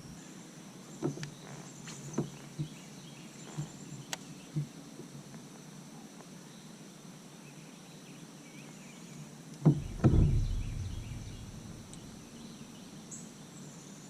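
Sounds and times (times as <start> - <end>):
dull thumps: 9.7 - 12.2
low rumble: 9.7 - 12.3.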